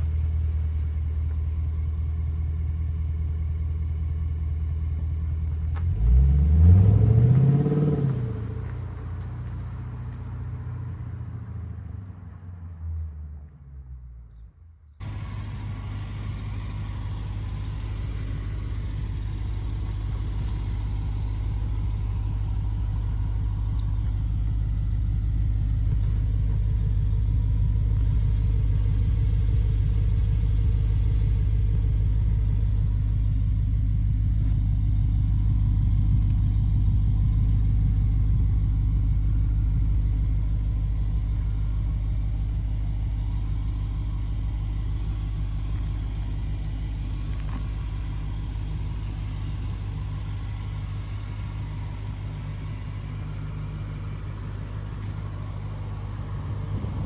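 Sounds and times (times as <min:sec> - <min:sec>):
car engine idling rumble: 0:00.0 - 0:57.0.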